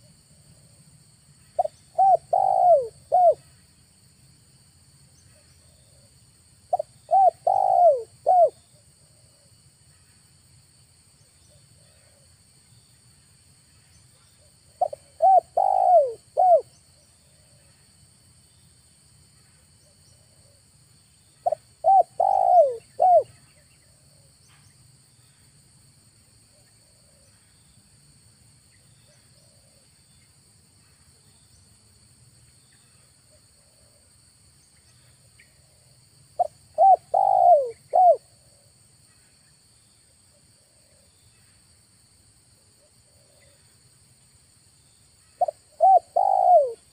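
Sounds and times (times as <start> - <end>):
dove cooing: 1.6 - 3.4, 6.7 - 8.6, 14.8 - 16.7, 21.4 - 23.3, 36.4 - 38.3, 45.4 - 46.9.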